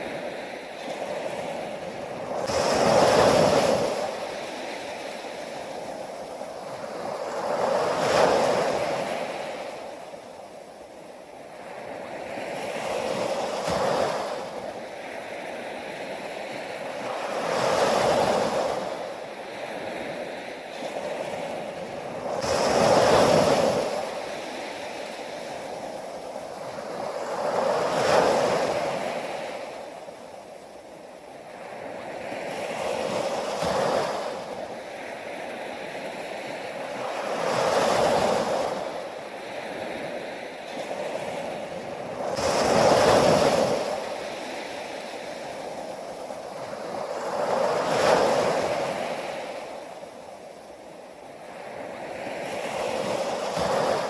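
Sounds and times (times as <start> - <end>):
waves breaking: 51.4 - 54.0.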